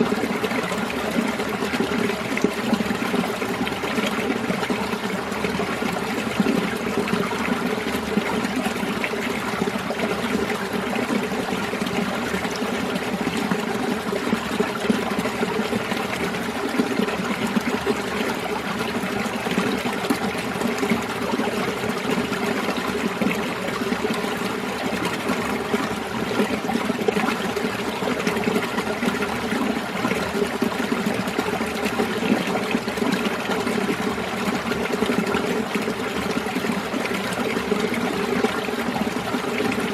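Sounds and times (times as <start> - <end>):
stream splashing over rocks: 0.0 - 39.9.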